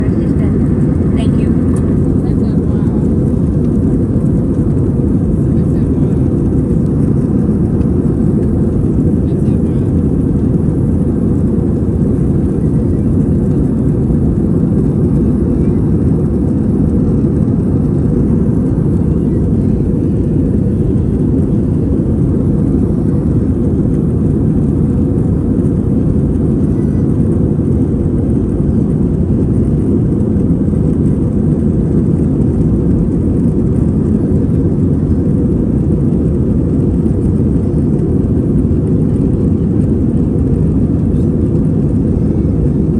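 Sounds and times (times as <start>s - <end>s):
airliner cabin noise: 0.0s - 42.9s.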